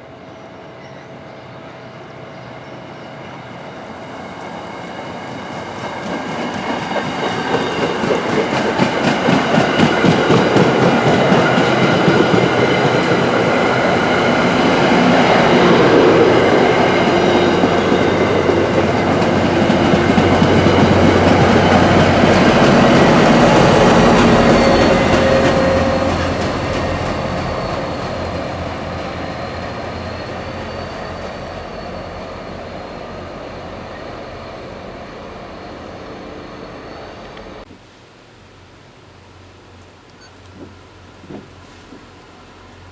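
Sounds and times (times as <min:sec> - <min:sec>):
train rumbling past: 0:00.0 - 0:37.7
thin high whine: 0:23.3 - 0:26.6.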